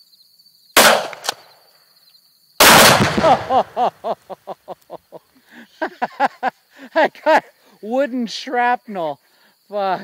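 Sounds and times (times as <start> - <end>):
rifle shot: 0.8 - 1.5, 2.6 - 3.8
explosive detonating with deep boom: 2.6 - 3.8.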